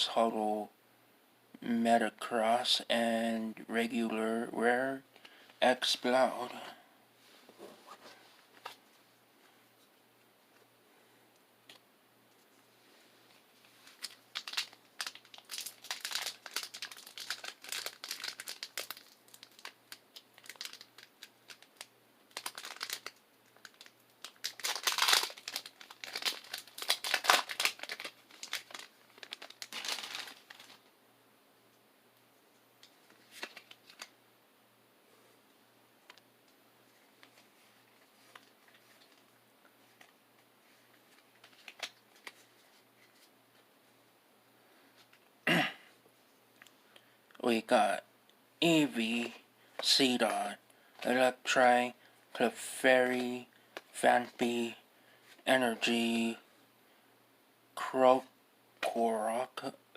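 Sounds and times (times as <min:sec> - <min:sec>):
foil wrapper crinkling and tearing: 0:13.8 - 0:30.8, 0:33.3 - 0:34.1, 0:41.1 - 0:43.3
cards being handled: 0:32.8 - 0:34.1, 0:37.2 - 0:43.3.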